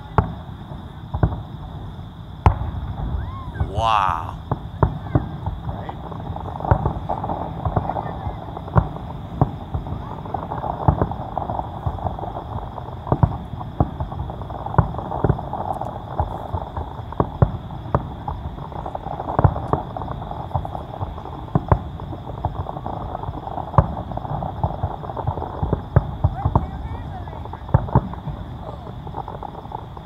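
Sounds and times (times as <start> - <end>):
fireworks booming and cracking: 0.0 - 30.0.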